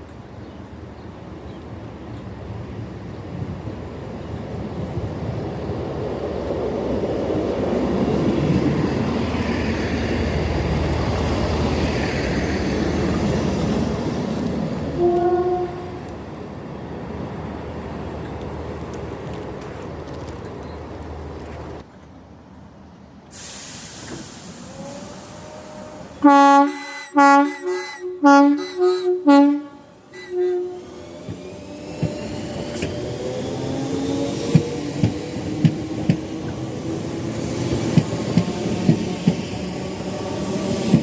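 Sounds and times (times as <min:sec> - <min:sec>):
train rumbling: 0:00.0 - 0:41.0
train horn toot: 0:15.0 - 0:16.1, 0:25.4 - 0:31.0.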